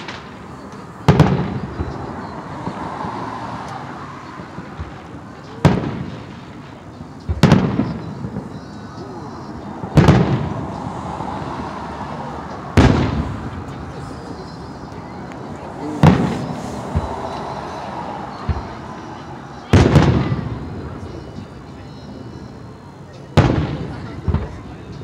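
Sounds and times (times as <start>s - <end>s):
firework shells booming: 0.0s - 2.8s, 4.6s - 8.6s, 9.8s - 10.9s, 12.7s - 15.0s, 15.9s - 18.9s, 19.7s - 21.1s.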